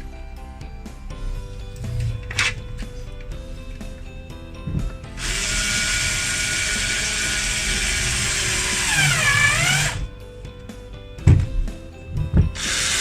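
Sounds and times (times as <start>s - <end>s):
electric drill driving a screw: 5.2s - 10.1s, 12.5s - 13.0s.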